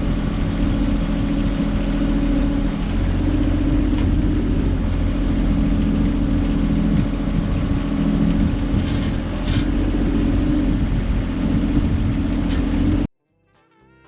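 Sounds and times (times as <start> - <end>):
heavy engine running: 0.0 - 13.1.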